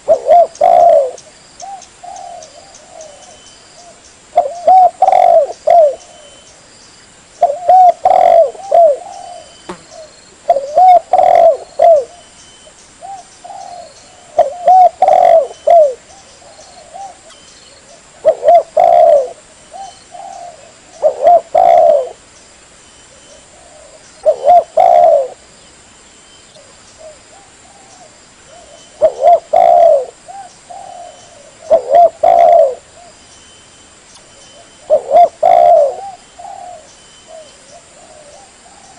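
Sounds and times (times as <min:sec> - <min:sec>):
dove cooing: 0:00.0 - 0:06.4, 0:07.4 - 0:12.2, 0:13.0 - 0:22.2, 0:23.2 - 0:25.4, 0:26.6 - 0:33.2, 0:34.5 - 0:38.9.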